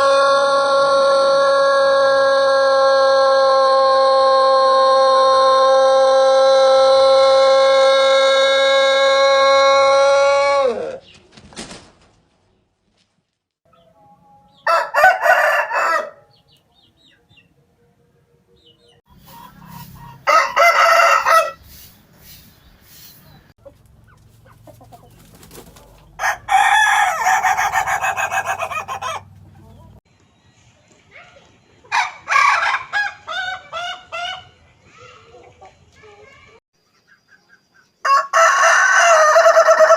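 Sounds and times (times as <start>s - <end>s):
roosters crowing: 0.0s - 11.0s, 14.5s - 16.4s, 19.2s - 21.9s, 24.3s - 30.0s, 31.9s - 34.6s, 38.0s - 39.9s
stuttering laughing crow: 26.2s - 29.3s.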